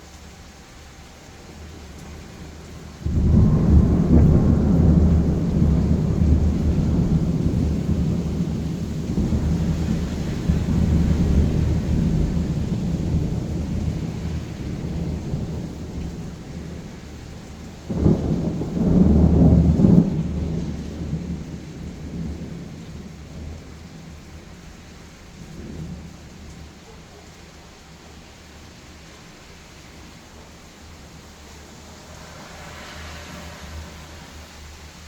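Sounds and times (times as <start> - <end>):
rain: 0.0 - 35.0
thunder rumbling: 1.4 - 35.0
thunderclap: 3.0 - 24.2, 30.8 - 35.0.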